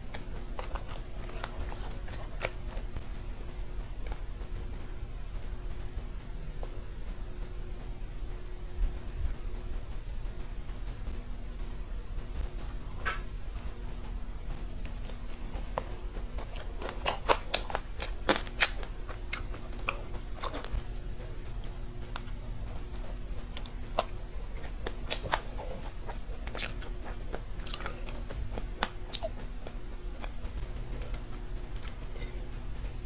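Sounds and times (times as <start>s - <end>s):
crunchy chewing: 0.0s - 5.0s, 12.5s - 33.0s.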